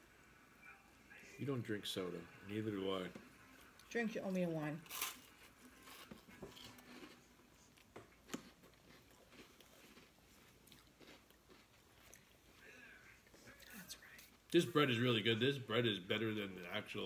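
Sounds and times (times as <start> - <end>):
chewing food: 4.9 - 12.7.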